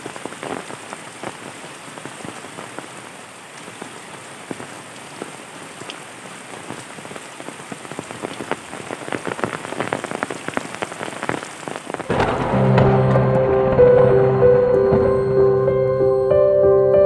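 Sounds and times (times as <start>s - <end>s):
rain drops striking a surface: 0.0s - 15.5s
music: 12.1s - 17.0s.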